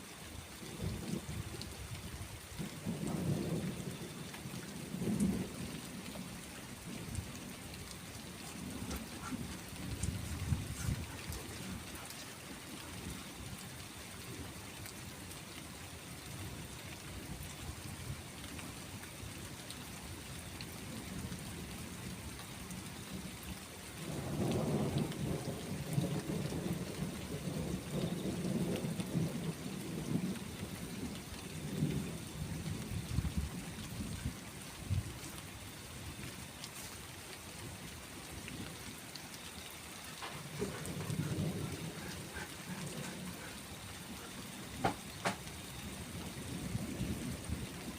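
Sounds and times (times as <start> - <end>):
steady rain falling: 0.0 - 47.9
rolling thunder: 8.5 - 12.6, 40.2 - 45.5.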